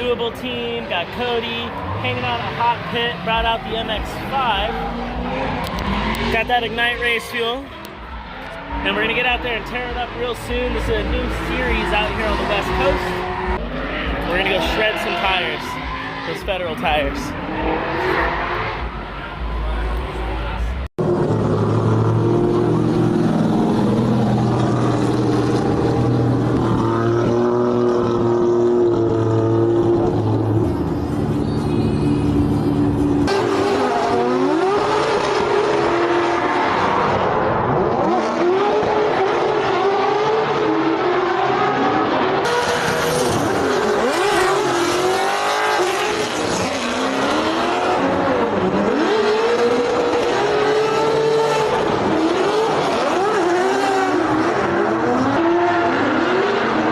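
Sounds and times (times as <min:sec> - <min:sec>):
racing car engine running: 0:01.0 - 0:56.9.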